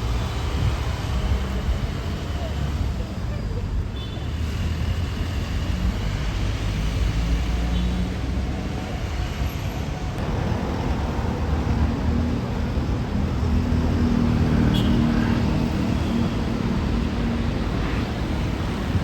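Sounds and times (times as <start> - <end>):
vehicle engines: 0.0 - 19.0
engine hum: 10.0 - 19.0.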